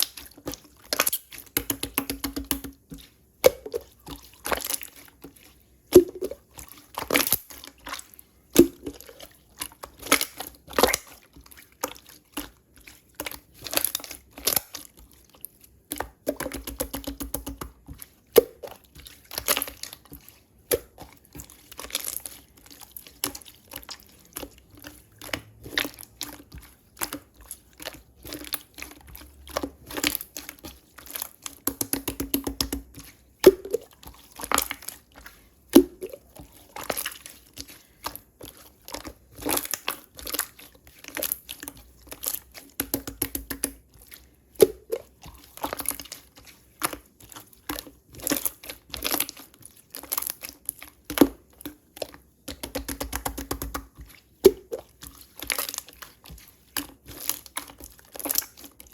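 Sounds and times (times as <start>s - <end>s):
crinkling and crunching: 0.0s - 58.9s.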